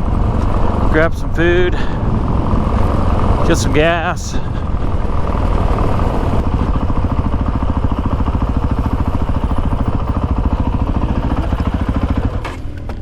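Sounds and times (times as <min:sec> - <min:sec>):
dirt bike engine idling: 0:00.0 - 0:13.0.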